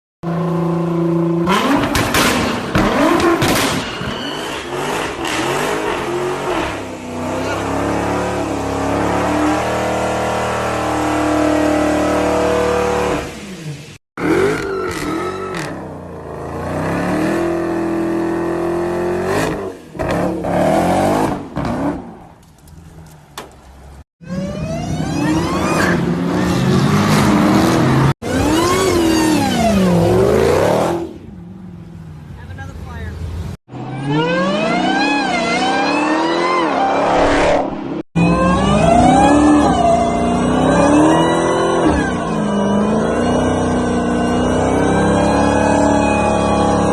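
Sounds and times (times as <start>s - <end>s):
car engine revving and accelerating: 0.3s - 22.1s, 24.2s - 32.0s, 33.7s - 46.9s.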